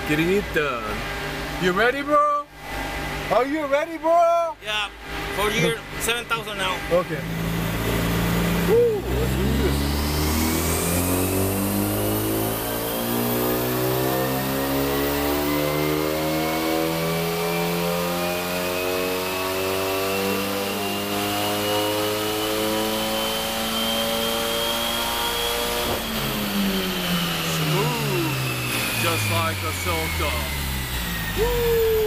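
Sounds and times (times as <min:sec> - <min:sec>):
high whine: 0:02.6 - 0:19.2, 0:22.8 - 0:32.0
car engine revving at full throttle: 0:04.6 - 0:32.0.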